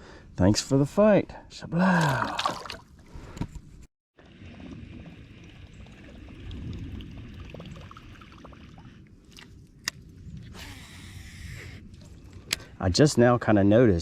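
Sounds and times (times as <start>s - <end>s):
river water splashing: 2.0s - 3.0s.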